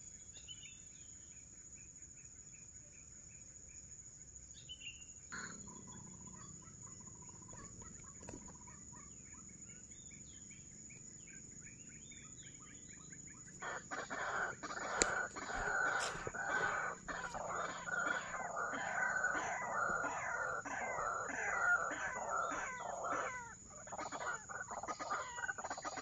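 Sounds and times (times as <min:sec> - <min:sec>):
waterhens calling: 0:13.5 - 0:26.0.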